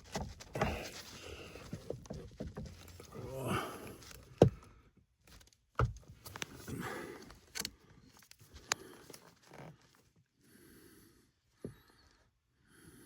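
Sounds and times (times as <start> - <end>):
person breathing: 3.2 - 4.8, 6.6 - 9.3, 10.4 - 13.0.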